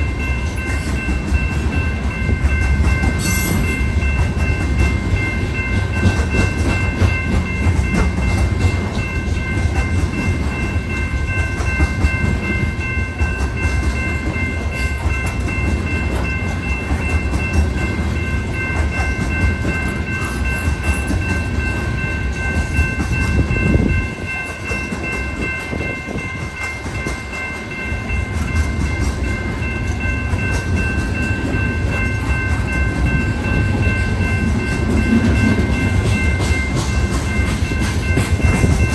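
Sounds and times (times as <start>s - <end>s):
high ringing tone: 0.0s - 38.9s
train wheels rumbling on rail: 0.0s - 38.9s.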